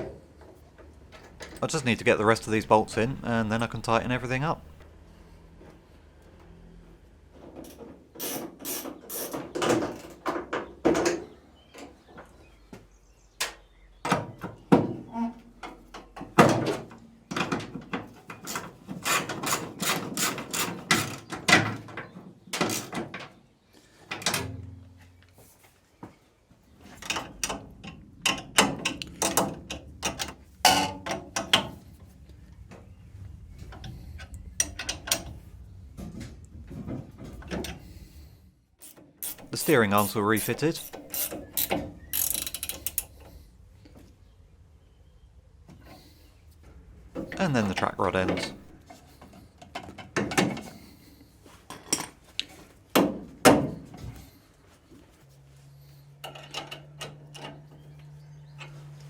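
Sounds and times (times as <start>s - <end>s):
ratchet wrench clicking: 41.0s - 43.0s.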